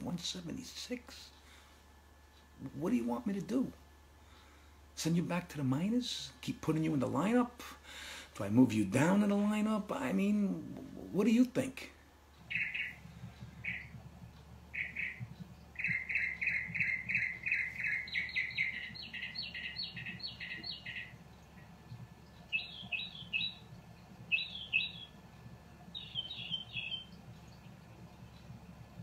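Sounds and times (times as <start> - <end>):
small bird chirping: 12.4 - 25.2, 25.9 - 28.6.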